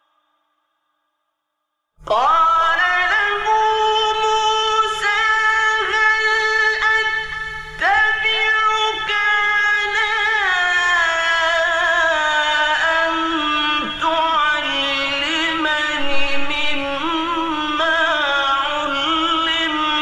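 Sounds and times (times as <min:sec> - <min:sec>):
man reciting in melismatic chant: 0:02.0 - 0:20.0.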